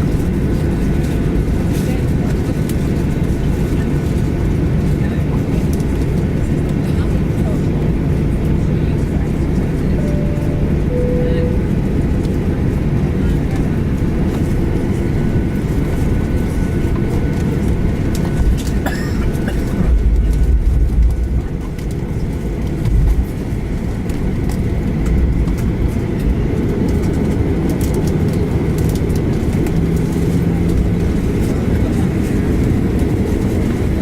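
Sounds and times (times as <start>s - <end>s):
airplane cabin engine rumble: 0.0s - 34.0s
heavy low thumps: 19.7s - 23.4s.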